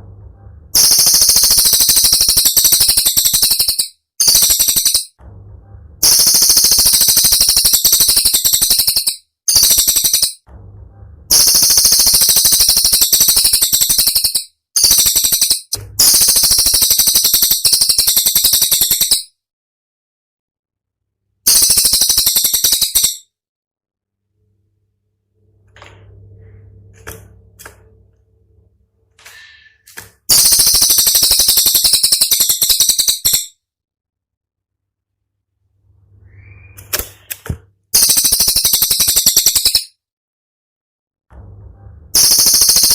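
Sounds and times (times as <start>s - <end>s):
low hum: 0.0s - 0.9s, 5.2s - 6.3s, 10.4s - 11.8s, 24.2s - 29.7s, 41.3s - 42.2s
bird song rapid rattling notes: 0.8s - 5.2s, 6.0s - 10.4s, 11.3s - 19.3s, 21.4s - 23.3s, 30.3s - 33.6s, 38.0s - 40.0s, 42.2s - 42.9s.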